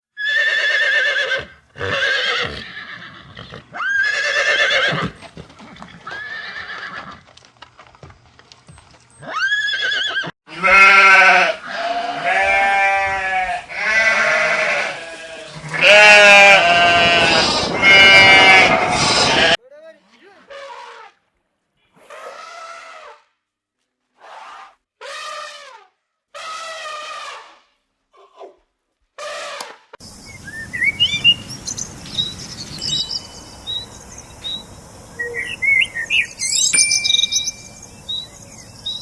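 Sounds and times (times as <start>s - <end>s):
quavering bleats: 10.5s - 21.0s
farm animal calls: 30.3s - 39.0s.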